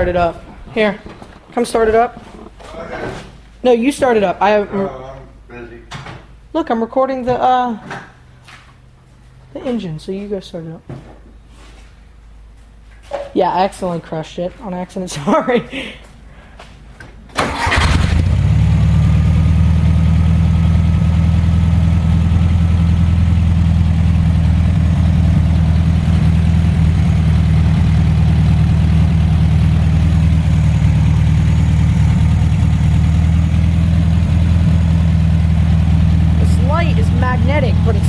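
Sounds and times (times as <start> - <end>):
car engine starting and idling: 17.3 - 38.0.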